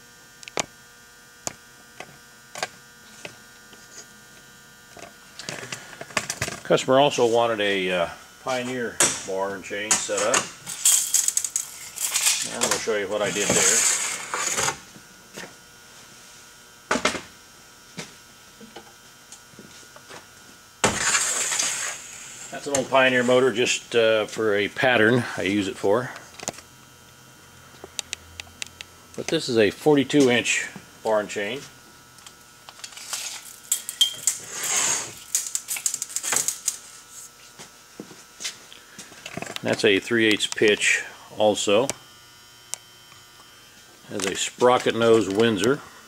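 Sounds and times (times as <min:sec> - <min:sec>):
metal scrape: 0:13.2 - 0:14.7, 0:20.9 - 0:23.4, 0:34.3 - 0:35.2.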